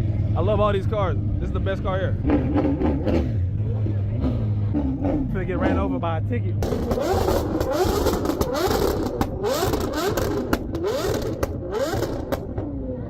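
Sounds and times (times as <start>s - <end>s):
car engine revving: 0.0s - 13.0s
exhaust pops and cracks: 6.6s - 12.6s.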